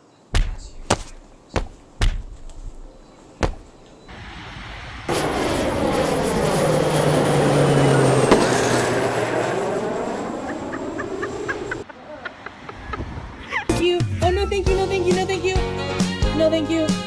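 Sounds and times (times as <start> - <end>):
engine rushing past: 4.1 - 11.8.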